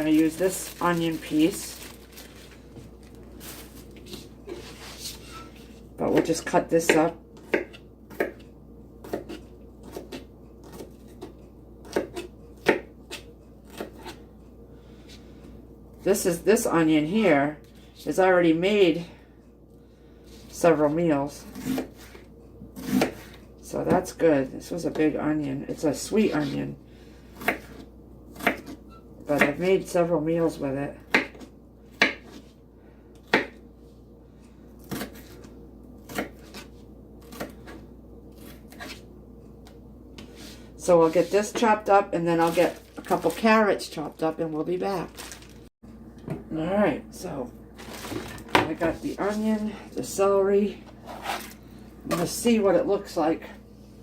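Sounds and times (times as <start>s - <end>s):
knife chopping onion: 6.0s - 8.4s, 9.0s - 14.2s, 22.8s - 24.1s, 27.4s - 29.7s, 31.0s - 32.5s, 33.2s - 33.6s, 34.8s - 37.8s.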